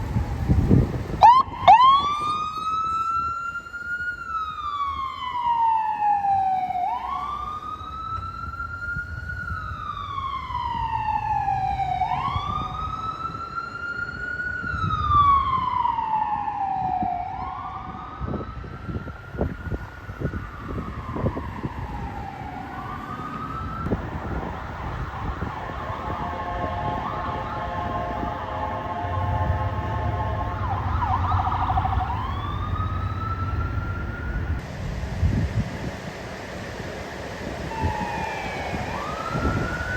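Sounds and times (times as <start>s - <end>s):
emergency vehicle siren wailing: 0.0s - 39.9s
low vehicle rumble: 0.0s - 39.9s
steady chord of tones: 22.6s - 39.9s.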